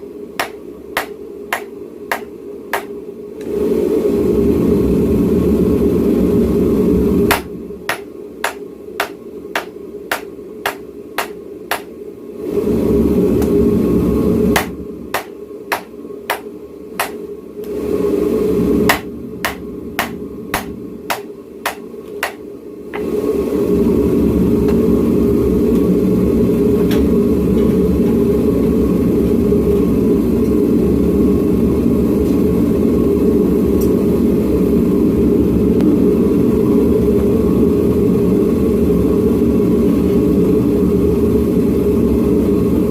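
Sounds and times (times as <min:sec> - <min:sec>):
hammer striking hot steel: 0:00.4 - 0:03.0, 0:07.3 - 0:11.9, 0:14.6 - 0:17.2, 0:18.9 - 0:22.4.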